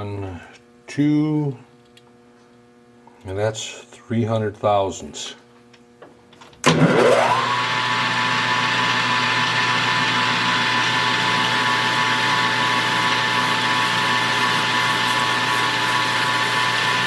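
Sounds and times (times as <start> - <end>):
metal lathe motor whine: 6.7 - 17.0.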